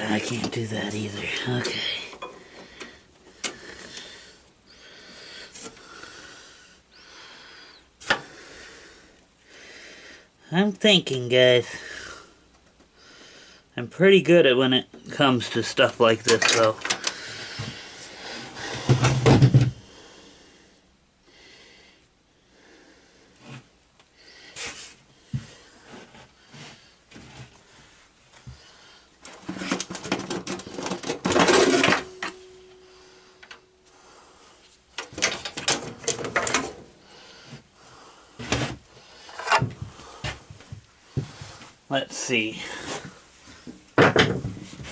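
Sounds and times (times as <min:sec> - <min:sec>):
metal tools clanking and scraping: 0:00.1 - 0:02.4, 0:16.3 - 0:17.2, 0:29.5 - 0:32.8, 0:39.2 - 0:39.8.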